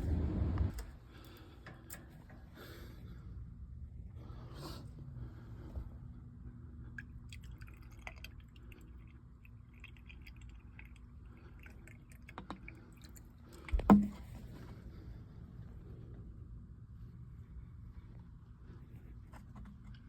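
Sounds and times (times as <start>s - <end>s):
faint steady hum: 0.0s - 20.0s
water dripping and trickling: 7.0s - 13.9s.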